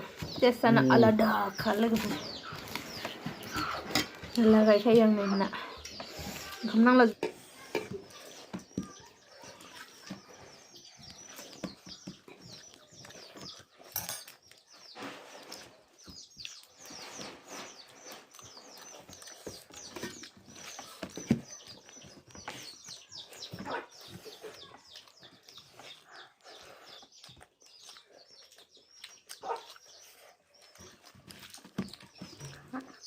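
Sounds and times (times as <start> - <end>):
chewing and lip-smacking: 11.0 - 17.0, 17.8 - 21.0, 21.6 - 33.0.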